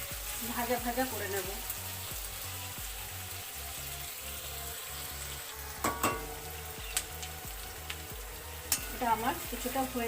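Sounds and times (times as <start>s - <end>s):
vegetables sizzling in oil: 0.0s - 10.0s
knocks against pan: 5.8s - 6.3s.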